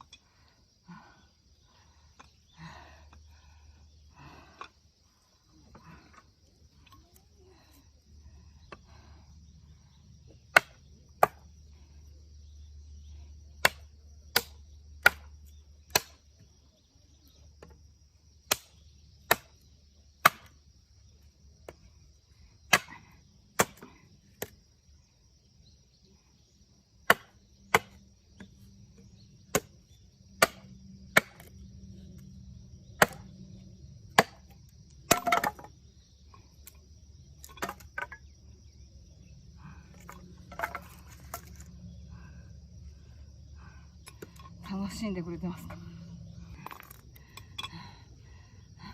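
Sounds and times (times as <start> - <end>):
insect chirring: 0.0 - 48.9
blade chopping firewood: 10.3 - 11.6, 13.5 - 16.5, 18.4 - 20.6, 22.6 - 24.6, 27.0 - 35.8, 36.4 - 38.4, 39.9 - 41.7, 44.0 - 44.8, 46.5 - 47.8.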